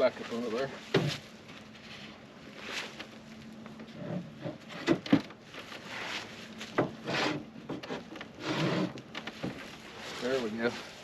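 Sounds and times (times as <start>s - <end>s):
wood scraping: 3.8s - 11.0s.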